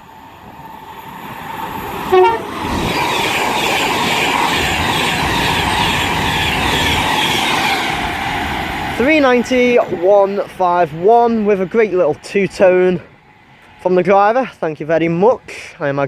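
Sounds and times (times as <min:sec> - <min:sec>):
electric train passing at speed: 0:00.0 - 0:15.4
two-tone train horn: 0:02.1 - 0:02.8.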